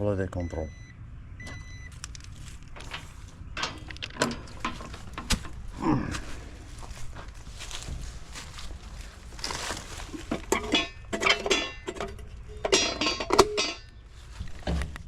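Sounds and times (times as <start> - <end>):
low steady hum: 0.0 - 15.0
handling clicks and knocks: 1.9 - 5.7, 9.4 - 15.0.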